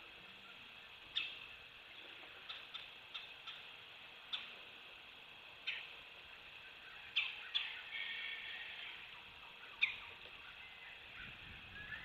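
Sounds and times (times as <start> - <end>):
faint hiss: 0.0 - 12.0.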